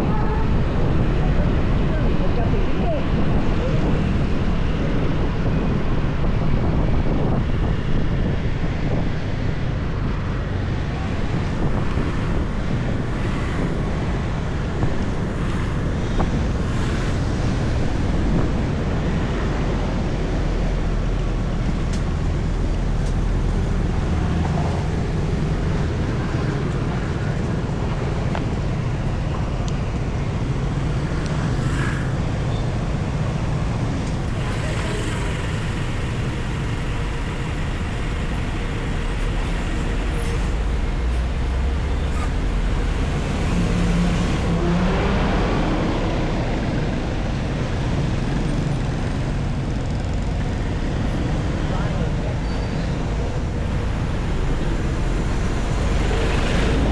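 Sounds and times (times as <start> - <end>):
road noise: 0.0 - 56.9
wind buffeting microphone: 0.0 - 56.9
motorbike engine rumble: 9.7 - 44.6.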